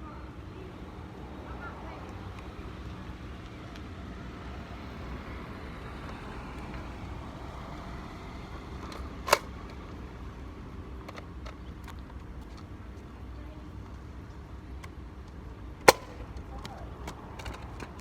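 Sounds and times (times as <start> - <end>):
paintball gun shot: 15.8 - 16.8.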